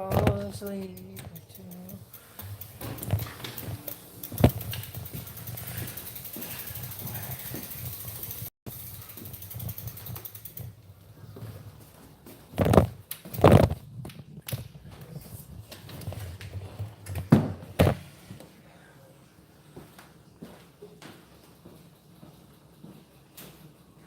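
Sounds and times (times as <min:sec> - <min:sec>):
mechanical clicking and knocking: 0:00.0 - 0:06.4.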